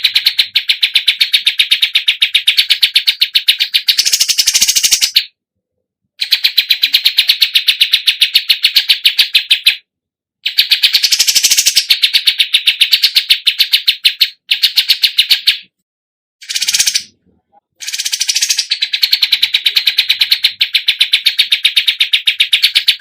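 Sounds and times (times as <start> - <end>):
songbird chattering trill: 0.0 - 5.2, 10.4 - 15.6, 16.4 - 17.2, 17.8 - 23.0.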